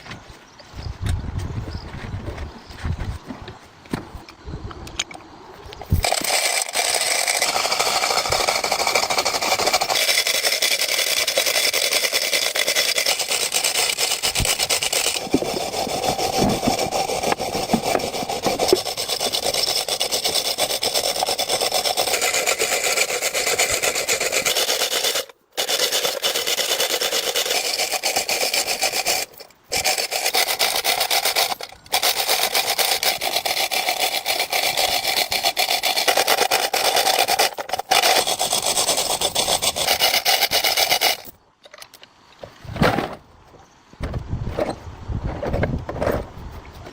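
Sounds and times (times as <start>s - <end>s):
harsh abrasive tool rubbing: 5.9s - 41.3s.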